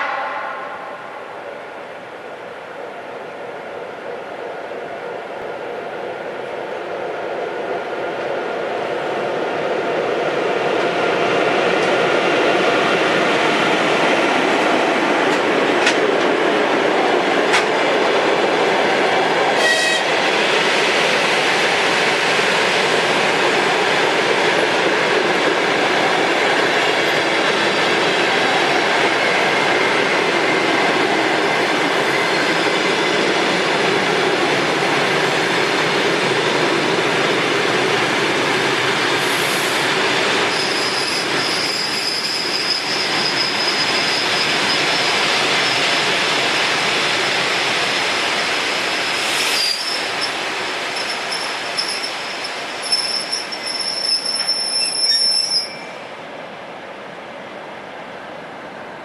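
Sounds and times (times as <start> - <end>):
train wheels rumbling: 5.2 - 56.0
high brake squeals: 40.5 - 45.2, 49.2 - 50.4, 51.0 - 56.0.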